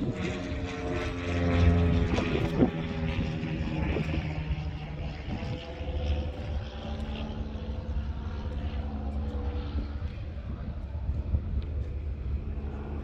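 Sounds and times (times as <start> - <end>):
distant engine drone: 0.0 - 13.0
wind rumble on microphone: 0.0 - 13.0.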